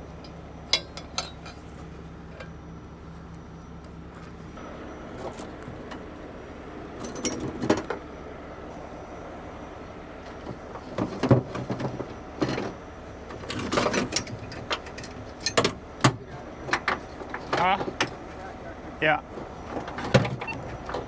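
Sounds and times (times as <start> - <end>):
engine idling: 0.0 - 21.0
metallic clanks and rattles: 0.1 - 2.6, 7.0 - 8.0, 10.3 - 18.2.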